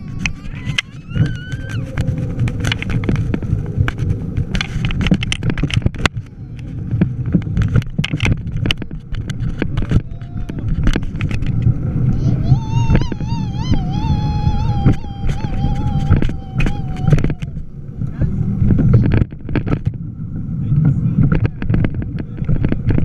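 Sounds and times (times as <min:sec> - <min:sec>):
bike rattles and knocks: 0:00.0 - 0:11.8, 0:18.6 - 0:20.0, 0:20.8 - 0:23.0
wind and road rumble: 0:00.0 - 0:23.0.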